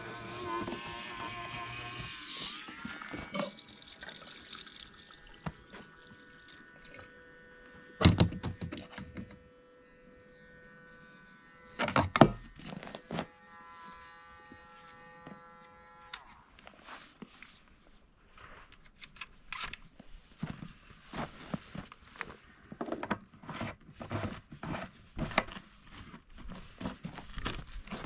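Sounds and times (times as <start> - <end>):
electric pump motor whirring: 0.0 - 16.5.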